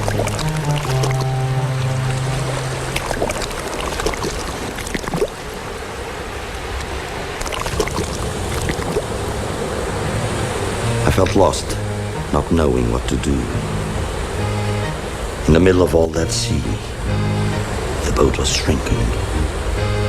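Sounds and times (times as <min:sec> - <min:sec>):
water lapping around a boat: 0:00.0 - 0:11.5.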